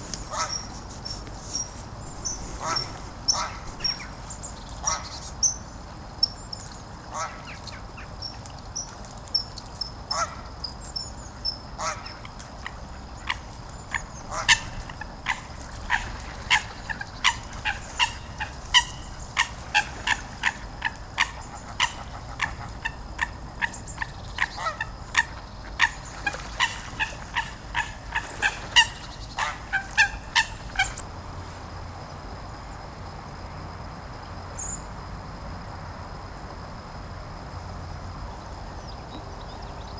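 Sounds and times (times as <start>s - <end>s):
geese honking: 0.0s - 5.2s, 11.8s - 31.0s
small bird chirping: 0.2s - 6.8s.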